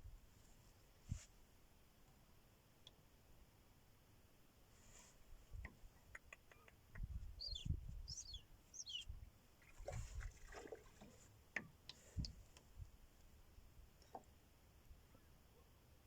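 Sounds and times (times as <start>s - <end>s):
seagull calling: 7.4s - 9.0s
water lapping: 9.6s - 11.3s.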